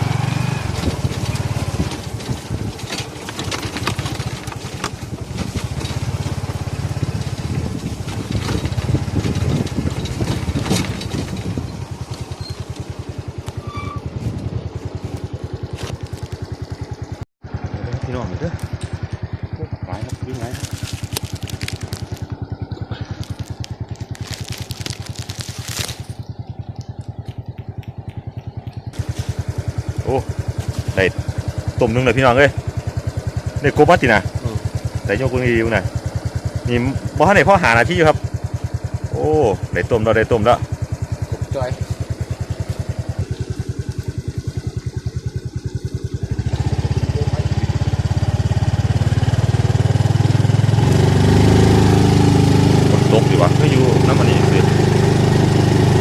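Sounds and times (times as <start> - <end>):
small engine running: 0.0 - 56.0
rustling and crackling: 20.4 - 31.7.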